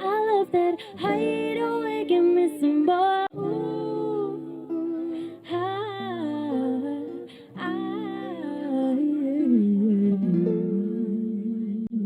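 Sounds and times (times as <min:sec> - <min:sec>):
person humming and singing wordlessly: 0:03.3 - 0:12.0.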